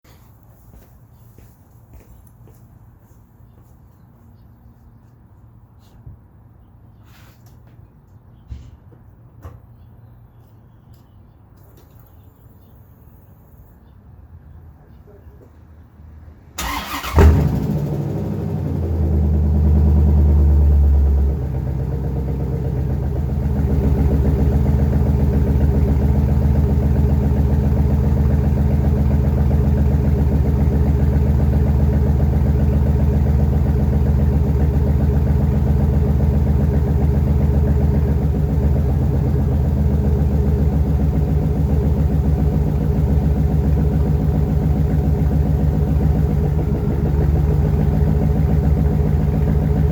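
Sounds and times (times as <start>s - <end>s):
car engine starting and idling: 16.4s - 49.9s.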